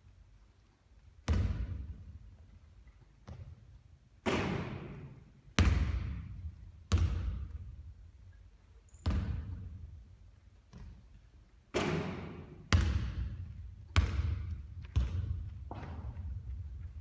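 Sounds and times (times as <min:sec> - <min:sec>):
basketball bouncing on hard court: 0:01.2 - 0:02.0, 0:05.6 - 0:07.7, 0:09.0 - 0:09.8, 0:11.8 - 0:17.0.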